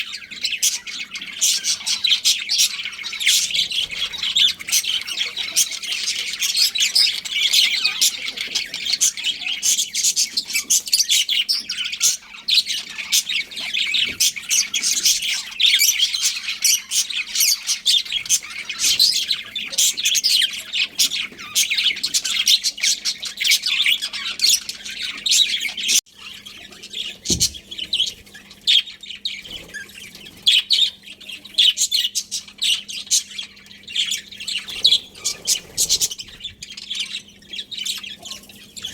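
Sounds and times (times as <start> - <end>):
budgerigars chirping: 0.0 - 38.9.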